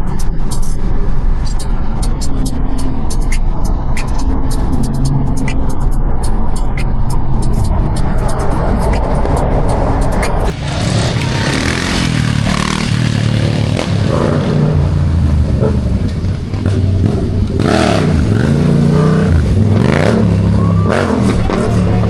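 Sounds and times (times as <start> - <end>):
car engine revving hard: 10.5 - 15.9, 16.6 - 22.0.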